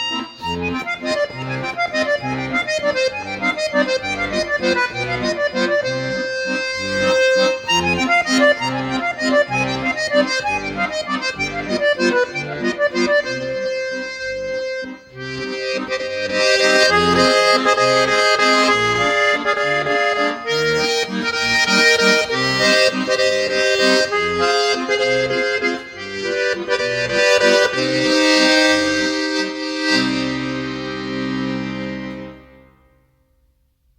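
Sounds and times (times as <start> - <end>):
button accordion playing a waltz: 0.0 - 32.9.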